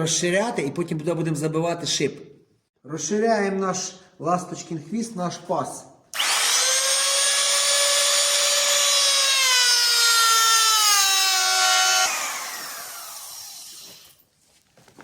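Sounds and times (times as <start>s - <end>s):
router whining and cutting wood: 6.1s - 14.2s.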